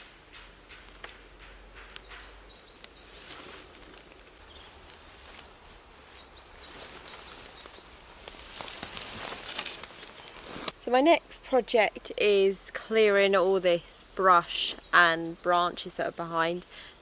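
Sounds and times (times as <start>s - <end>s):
bird chirping: 0.0s - 10.6s
leaves and twigs rustling: 0.0s - 10.9s.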